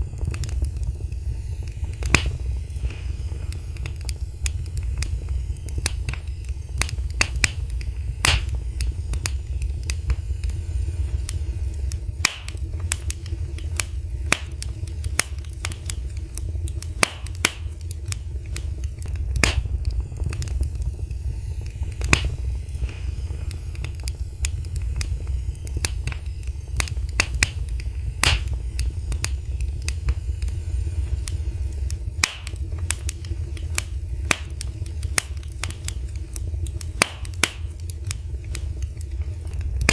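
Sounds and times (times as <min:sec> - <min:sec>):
fire crackling in a fireplace: 0:00.0 - 0:39.9
low rumble of flames: 0:00.0 - 0:39.9
sharp pops and snaps: 0:00.1 - 0:39.9.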